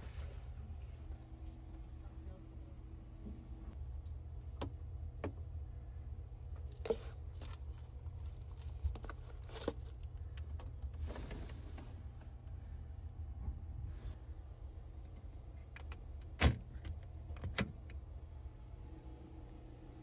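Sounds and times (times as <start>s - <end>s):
plastic wrapping crinkling: 6.7s - 10.1s.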